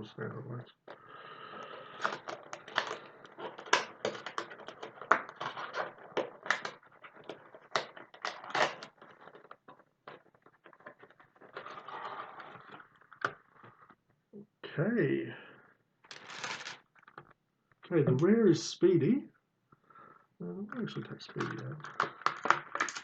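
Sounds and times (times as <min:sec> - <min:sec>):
plastic packaging crinkling: 0:01.6 - 0:13.9, 0:16.1 - 0:17.2, 0:21.4 - 0:23.0.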